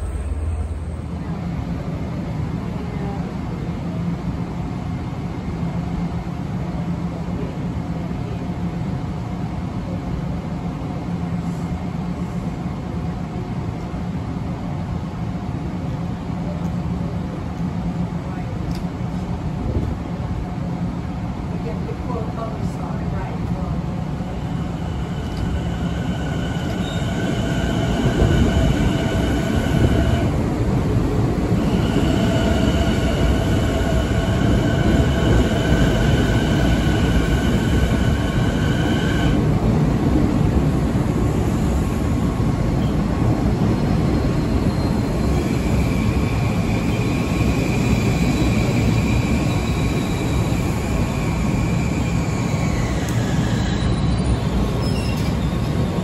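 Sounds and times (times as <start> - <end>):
train wheels rumbling: 0.0 - 56.0
high brake squeals: 26.3 - 29.3, 43.8 - 50.6, 51.2 - 56.0
thin squeal: 53.6 - 55.7.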